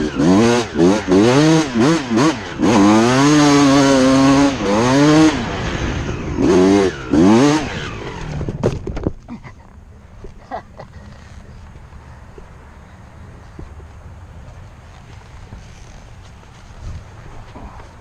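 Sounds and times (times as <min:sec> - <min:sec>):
dirt bike engine revving: 0:00.0 - 0:08.7.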